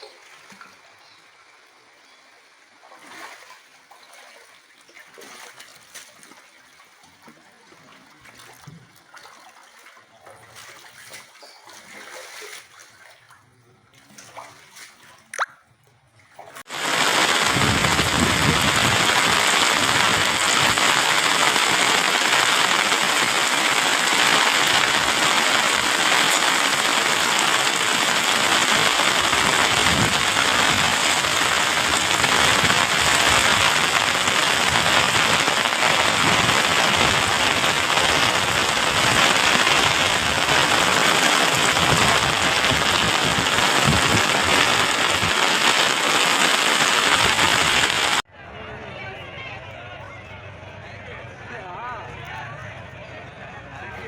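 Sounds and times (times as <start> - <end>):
loud rush of water: 16.6 - 48.2.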